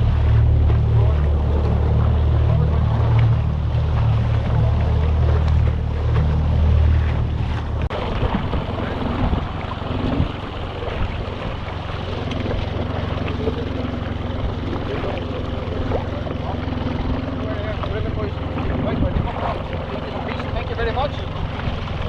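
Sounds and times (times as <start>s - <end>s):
motorboat engine running: 0.0s - 22.0s
water noise: 0.0s - 22.0s
wind noise: 5.1s - 12.8s, 18.5s - 19.8s.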